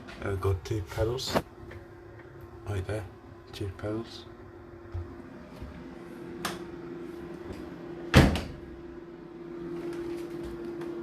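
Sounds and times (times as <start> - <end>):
dryer door click: 8.1 - 8.7
dryer door thud: 8.1 - 8.8.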